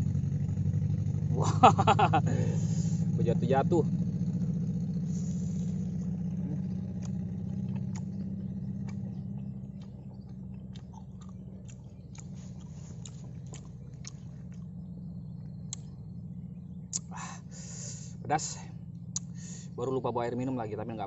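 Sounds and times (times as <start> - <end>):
low engine hum: 0.0 - 21.0
chewing and biting: 6.8 - 14.8, 15.4 - 15.9
wet mouth clicks: 6.9 - 8.1, 9.8 - 14.7, 15.7 - 15.9, 16.9 - 17.2, 19.1 - 19.5.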